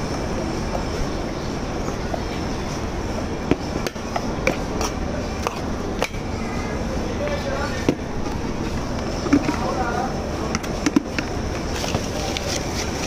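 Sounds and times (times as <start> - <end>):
train rumbling: 0.0 - 6.0.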